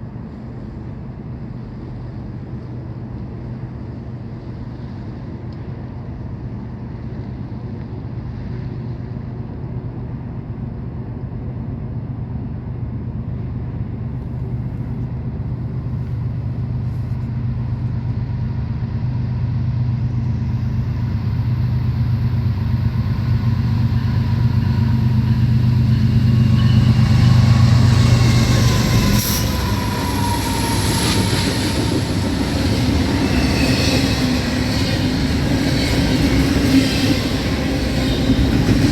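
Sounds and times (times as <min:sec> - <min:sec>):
locomotive engine drone: 0:00.0 - 0:38.9
train wheels ringing and clattering: 0:16.0 - 0:38.9.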